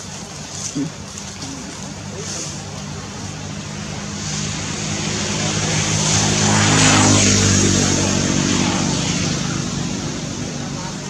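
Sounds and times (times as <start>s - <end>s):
vehicle engine passing: 0.3s - 11.0s.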